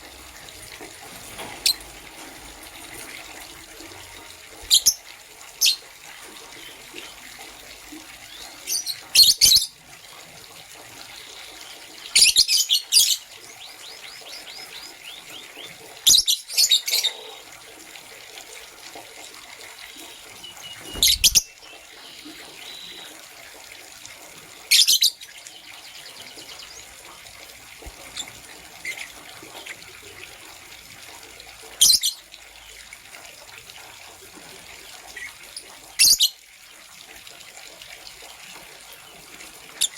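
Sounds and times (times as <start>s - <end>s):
lovebirds chirping: 19.8s - 23.2s.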